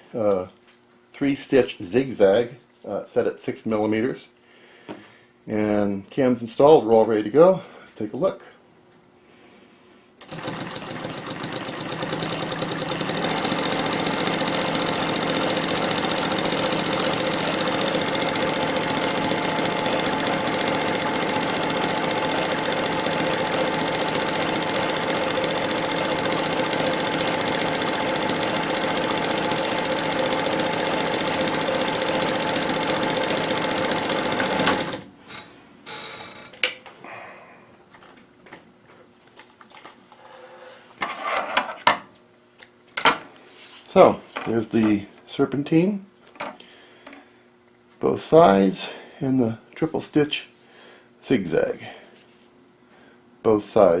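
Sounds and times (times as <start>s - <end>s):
sewing machine stitching: 10.2s - 35.1s.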